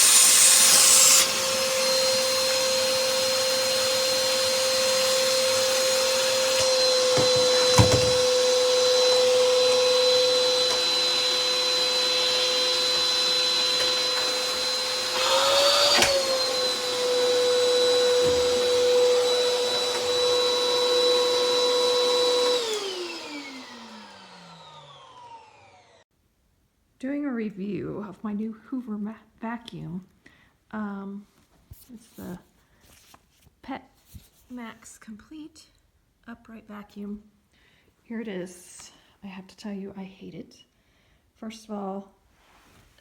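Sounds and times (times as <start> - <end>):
vacuum cleaner whining: 0.0 - 26.1
knocks: 7.1 - 8.3.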